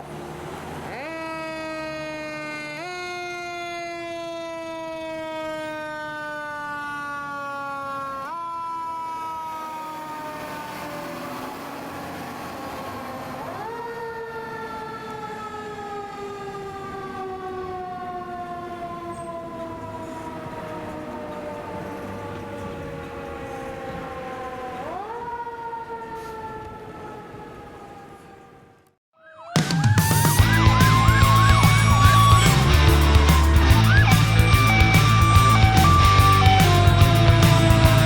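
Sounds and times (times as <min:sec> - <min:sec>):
mechanical siren winding down: 0:00.8 - 0:38.0
broad rushing noise: 0:30.3 - 0:38.0.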